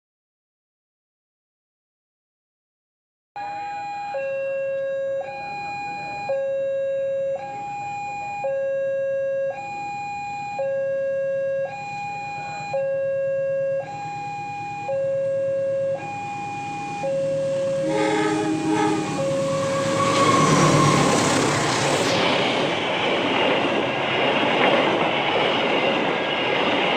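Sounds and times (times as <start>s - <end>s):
two-tone electronic alarm: 3.4s - 9.0s, 11.6s - 22.7s.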